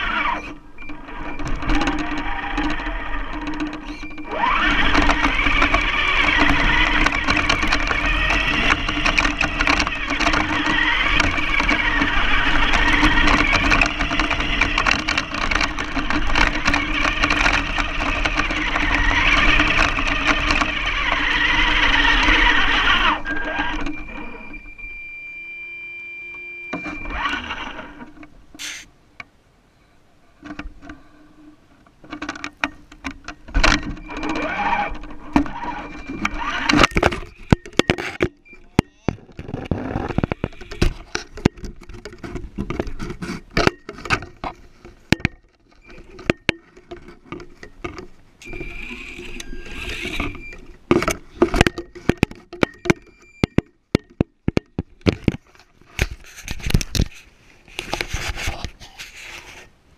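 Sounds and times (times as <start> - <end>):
rattly crackly running noise: 0.0 - 24.3, 32.0 - 38.5, 39.1 - 52.8
rc car motor whining: 0.0 - 28.9, 33.7 - 41.0, 48.4 - 50.6.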